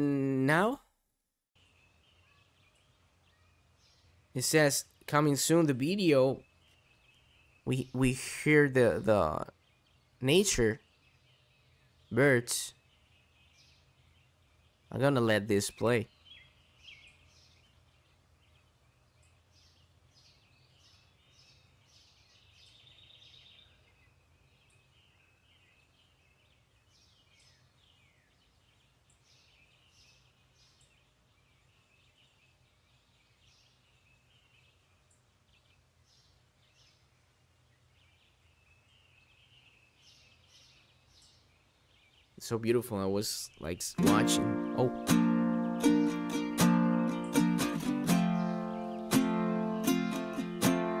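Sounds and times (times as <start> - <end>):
birds chirping: 1.6 - 51.0.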